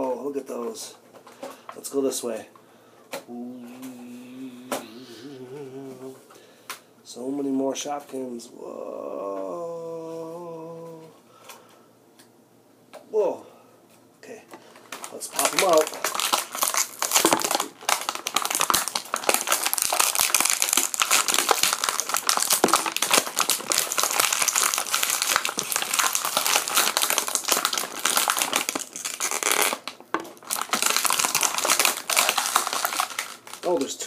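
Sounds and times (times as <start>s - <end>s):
plastic packaging crinkling: 14.6s - 34.0s.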